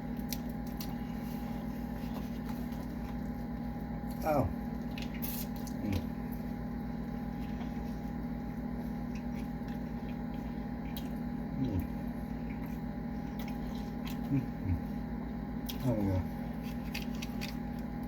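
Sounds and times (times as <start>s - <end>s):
low hum: 0.0s - 18.0s
wet chewing: 0.0s - 18.0s
person murmuring mm: 4.2s - 4.6s, 11.5s - 12.1s, 14.2s - 15.0s, 15.8s - 16.4s.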